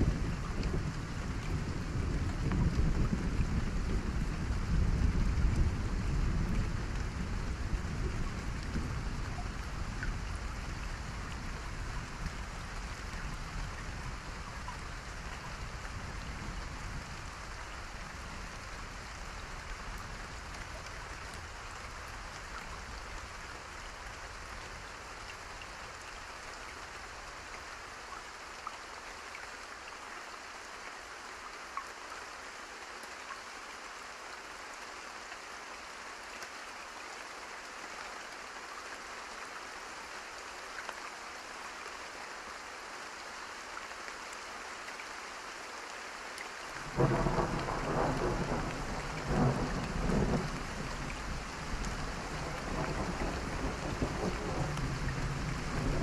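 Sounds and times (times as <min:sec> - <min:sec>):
low rumble of thunder: 0:00.0 - 0:21.2, 0:46.8 - 0:56.0
steady rain hiss: 0:00.0 - 0:56.0.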